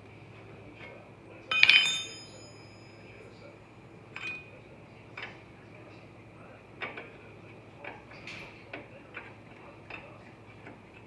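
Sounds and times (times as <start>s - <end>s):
hand tools clicking on metal: 1.5s - 2.7s.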